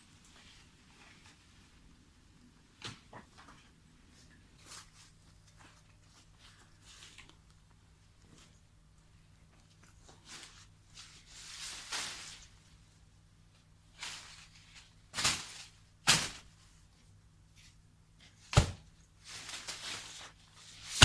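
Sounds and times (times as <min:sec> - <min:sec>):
rustling or scraping: 0:00.1 - 0:01.8, 0:03.2 - 0:07.5, 0:09.7 - 0:13.0, 0:13.9 - 0:16.9, 0:19.2 - 0:21.0.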